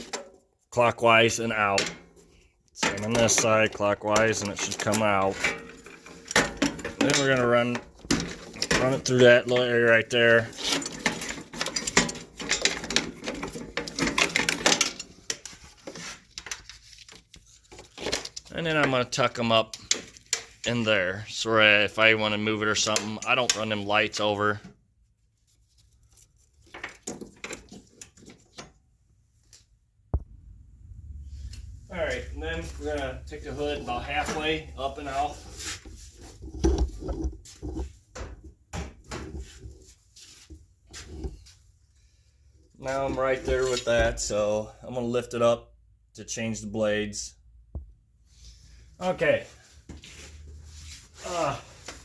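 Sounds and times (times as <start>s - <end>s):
light clicks and rattles of wiring: 2.7s - 20.6s.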